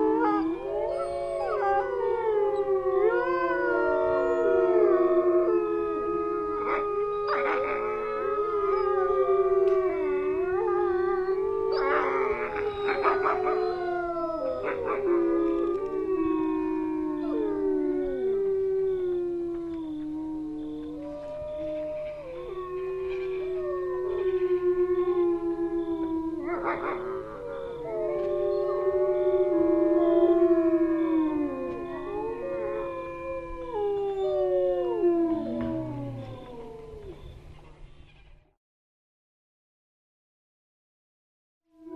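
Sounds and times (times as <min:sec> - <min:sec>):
wolves howling in chorus: 0:00.0 - 0:37.8
wolves yipping: 0:06.6 - 0:08.1, 0:11.2 - 0:18.1, 0:26.2 - 0:29.0, 0:34.9 - 0:38.3.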